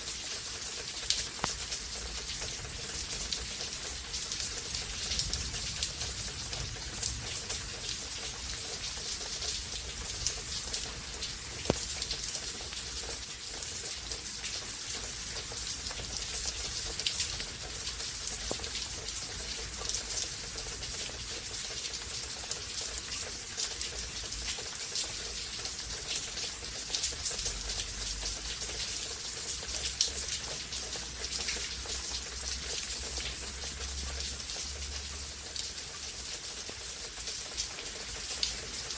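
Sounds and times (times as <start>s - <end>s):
rain hissing: 0.4s - 21.5s
raindrops tapping: 0.5s - 38.9s.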